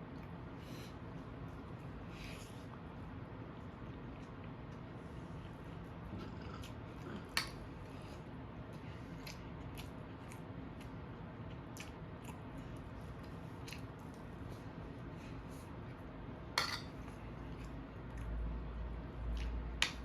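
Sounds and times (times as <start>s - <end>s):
person chewing food: 0.1s - 14.8s.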